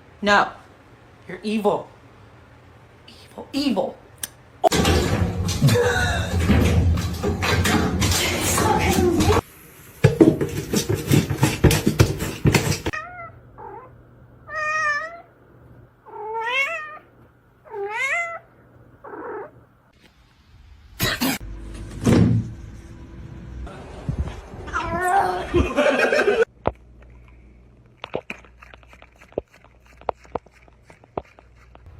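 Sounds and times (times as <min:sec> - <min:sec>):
cat meowing: 0:12.9 - 0:13.9, 0:14.5 - 0:15.3, 0:16.1 - 0:17.1, 0:17.7 - 0:18.5.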